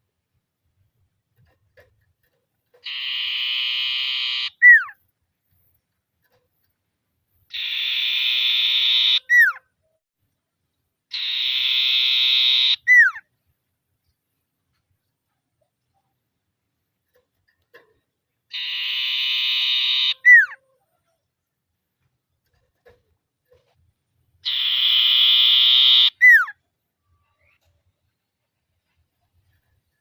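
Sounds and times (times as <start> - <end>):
bird sharp down-slurred whistle: 2.9 - 5.0, 7.5 - 9.6, 11.1 - 13.2, 18.6 - 20.6, 24.5 - 26.6.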